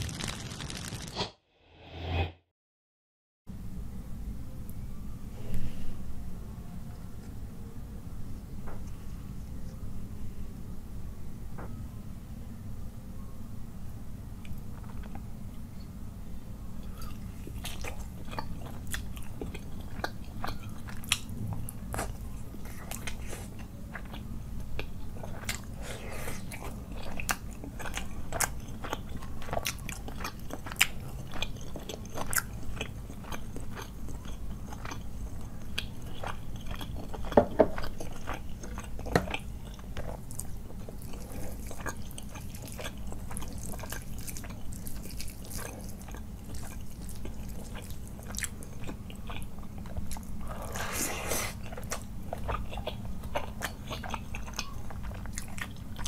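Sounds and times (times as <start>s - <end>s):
steady low hum: 3.5s - 56.0s
mouth chewing sounds: 16.8s - 56.0s.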